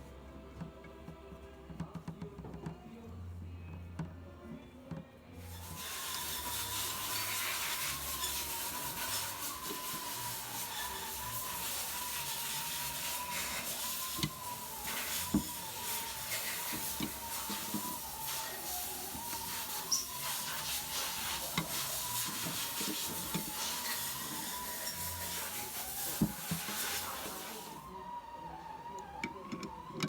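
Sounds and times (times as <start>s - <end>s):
power tool grinding metal: 5.4s - 27.9s.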